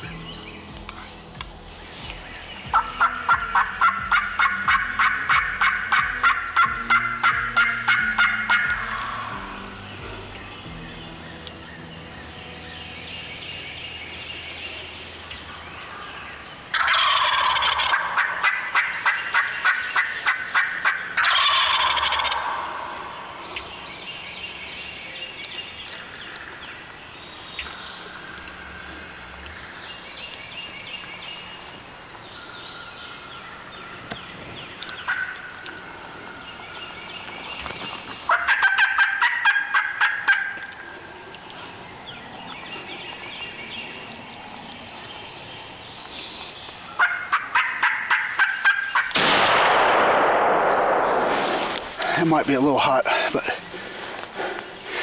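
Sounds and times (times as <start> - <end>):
turkeys gobbling: 0.8 - 12.4, 13.5 - 24.5, 33.2 - 49.8.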